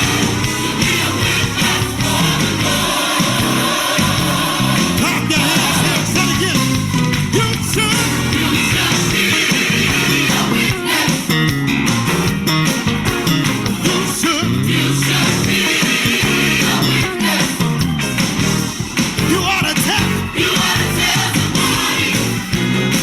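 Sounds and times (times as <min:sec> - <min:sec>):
people singing: 0:00.0 - 0:06.8, 0:07.4 - 0:11.6, 0:13.7 - 0:18.3, 0:19.6 - 0:23.0
worship band with guitar: 0:00.0 - 0:23.0.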